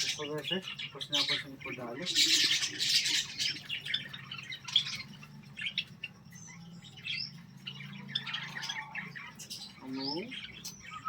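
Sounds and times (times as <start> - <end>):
pet birds chirping: 0.0 - 11.0.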